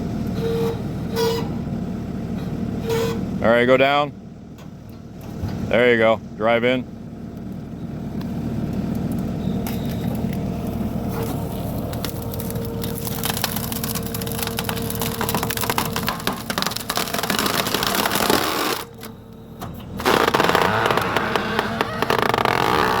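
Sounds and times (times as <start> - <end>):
engine and hydraulics running: 0.0 - 23.0
wood cracking and splintering: 11.2 - 19.1, 20.0 - 23.0.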